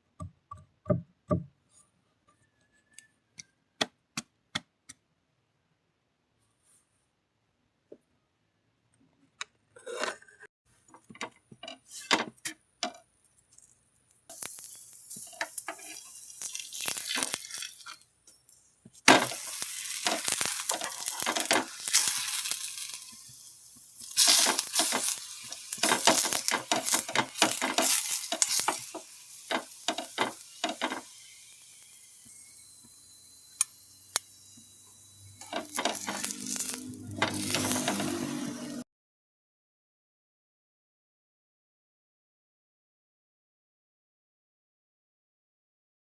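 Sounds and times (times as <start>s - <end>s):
oil sizzling on a griddle: 13.2s - 38.8s.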